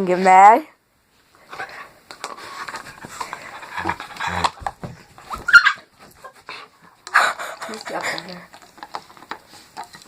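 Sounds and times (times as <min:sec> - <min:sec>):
dog panting: 0:01.5 - 0:05.4, 0:06.0 - 0:09.7.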